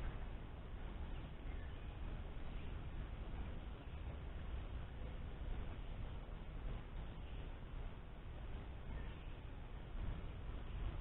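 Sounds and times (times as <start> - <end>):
low outdoor background noise: 0.0 - 11.0.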